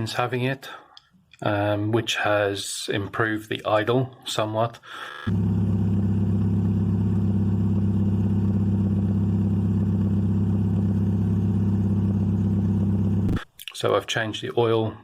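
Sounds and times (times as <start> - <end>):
car engine idling: 5.3 - 13.4.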